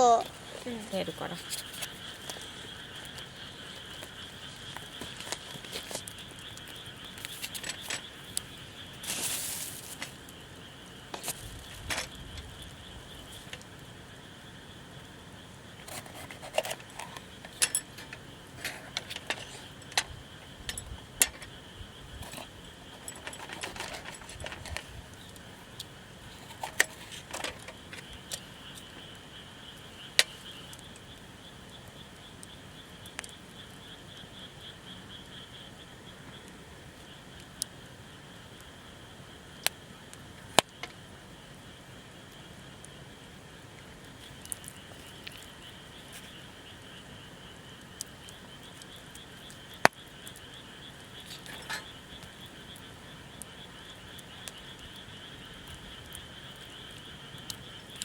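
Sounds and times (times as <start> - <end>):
night insects chorus: 0.0 - 58.0
camp cooking gear clinking: 15.8 - 21.6, 22.2 - 25.4, 51.2 - 52.0.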